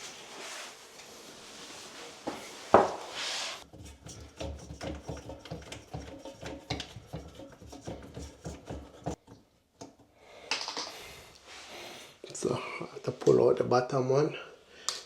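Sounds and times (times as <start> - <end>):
pipe parts clicking and rattling: 3.7 - 11.0.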